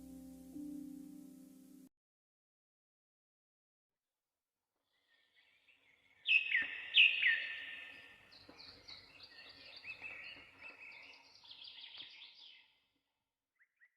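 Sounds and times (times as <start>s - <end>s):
sharp downward-sliding bird chirps: 5.2s - 8.4s
bird twittering: 5.4s - 12.7s.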